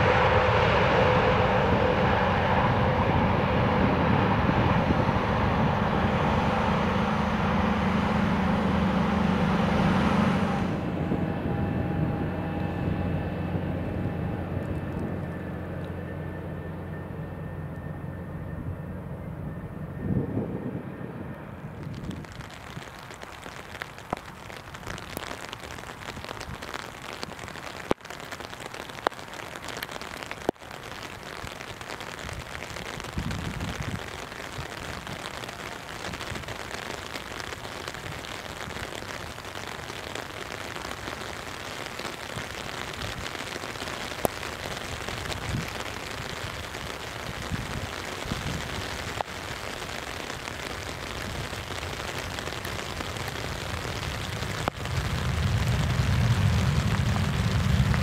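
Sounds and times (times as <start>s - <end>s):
rain hissing: 0.0s - 18.1s, 21.3s - 58.0s
jet engines humming with whine: 0.0s - 58.0s
sharp taps of raindrops: 21.8s - 56.0s.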